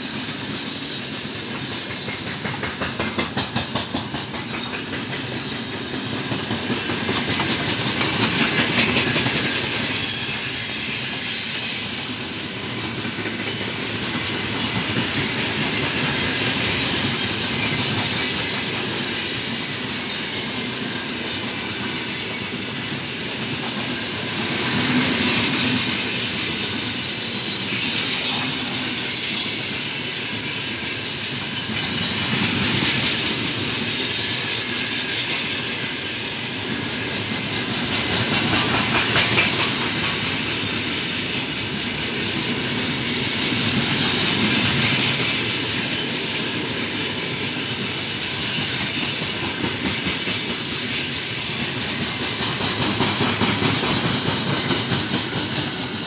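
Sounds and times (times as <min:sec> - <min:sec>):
steel wheels rushing on rail: 0:00.0 - 0:56.0.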